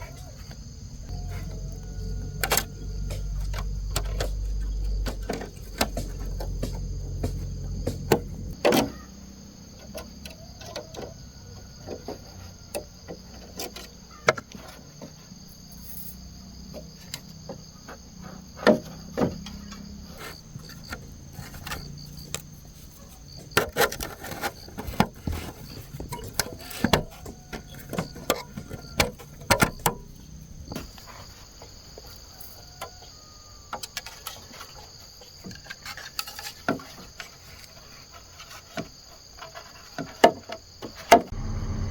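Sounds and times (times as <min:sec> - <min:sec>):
insects chirping: 0:00.0 - 0:41.9
sharp knocks and clatter: 0:03.0 - 0:09.0.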